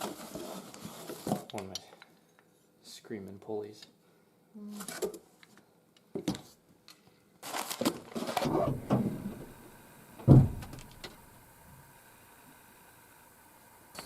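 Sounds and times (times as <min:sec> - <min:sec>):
loud thump: 0:10.2 - 0:11.0.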